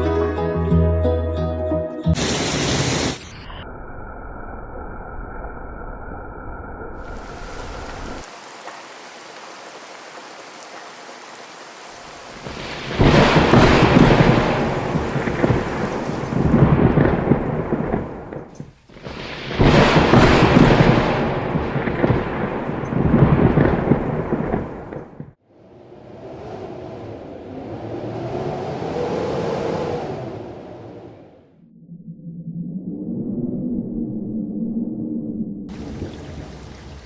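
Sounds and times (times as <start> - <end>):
heavy rain hissing: 2.2 - 3.4, 7.0 - 25.1, 35.7 - 37.0
thunder rolling: 7.0 - 10.4, 12.0 - 25.4.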